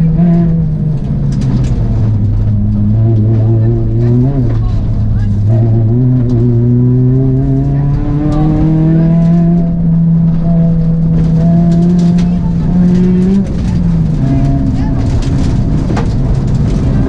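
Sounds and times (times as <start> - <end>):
rally car engine from inside cabin: 0.0 - 17.0.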